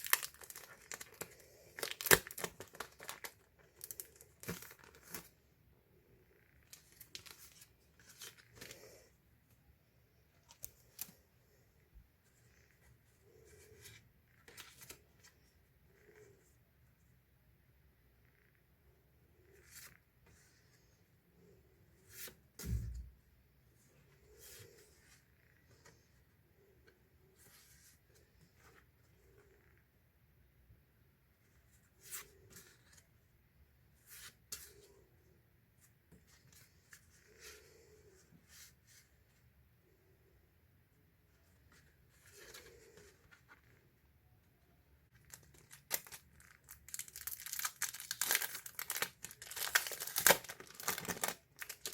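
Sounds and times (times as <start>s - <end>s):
packaging rustling: 45.2s - 51.9s.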